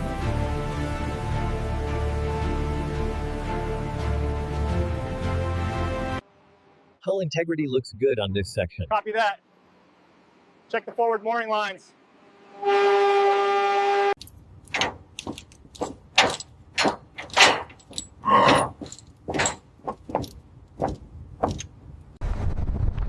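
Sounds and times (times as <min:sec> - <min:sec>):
horn blast: 0:11.8 - 0:14.2
metallic clanks and knocks: 0:14.2 - 0:21.8
low rumble: 0:22.2 - 0:23.0.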